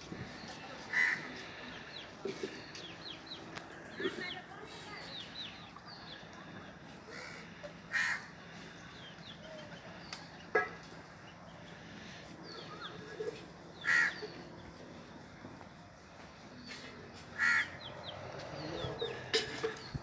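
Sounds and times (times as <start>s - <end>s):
small birds chirping: 0.0s - 15.2s, 15.9s - 20.0s
crows cawing: 0.9s - 1.4s, 7.1s - 8.7s, 13.8s - 14.3s, 17.4s - 17.9s.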